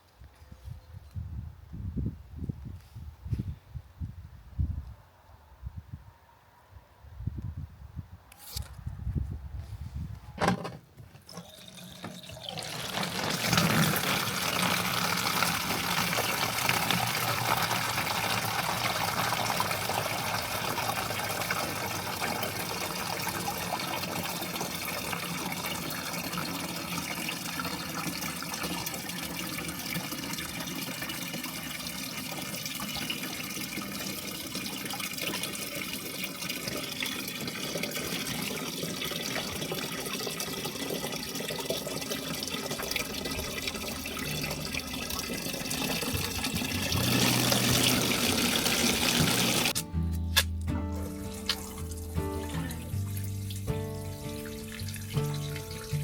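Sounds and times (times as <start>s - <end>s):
tap water running: 11.2s - 49.8s, 50.9s - 56.0s.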